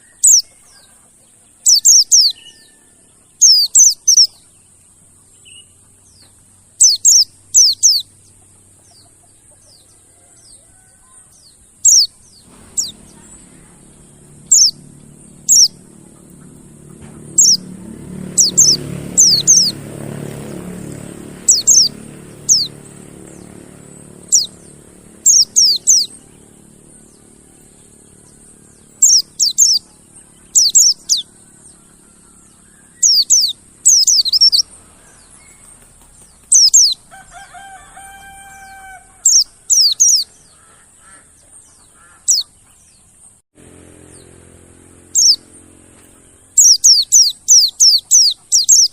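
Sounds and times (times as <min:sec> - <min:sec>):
bird chirping high and sharp: 0:00.0 - 0:00.8, 0:01.6 - 0:02.7, 0:03.4 - 0:04.5, 0:05.4 - 0:08.1, 0:11.8 - 0:41.2, 0:41.8 - 0:42.7, 0:45.0 - 0:48.9
lower-pitched bird call: 0:00.0 - 0:04.5, 0:06.8 - 0:08.2, 0:08.8 - 0:42.8, 0:44.0 - 0:48.9
low rumble: 0:12.3 - 0:33.8.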